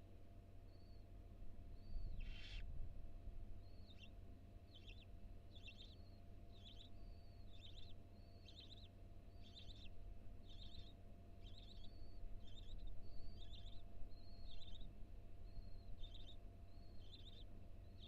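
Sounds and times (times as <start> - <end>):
faint microphone hum: 0.0 - 18.0
owl chittering calls: 1.7 - 2.6, 4.7 - 18.0.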